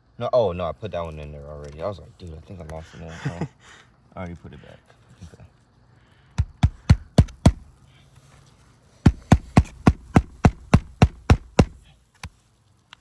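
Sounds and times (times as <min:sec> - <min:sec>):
hammer striking roofing nail: 0:06.4 - 0:07.7, 0:09.0 - 0:11.8.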